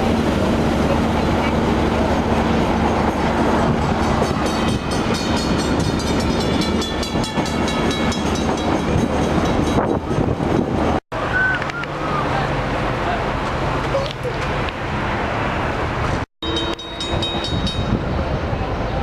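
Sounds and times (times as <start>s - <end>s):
train rumbling on rails: 0.0s - 19.0s
rail clicks: 1.9s - 12.0s, 16.1s - 18.3s.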